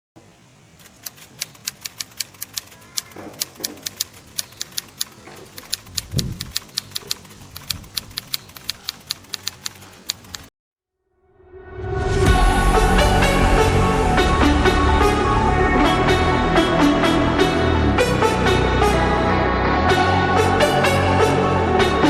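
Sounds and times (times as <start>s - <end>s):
sharp clicks: 0.8s - 10.5s.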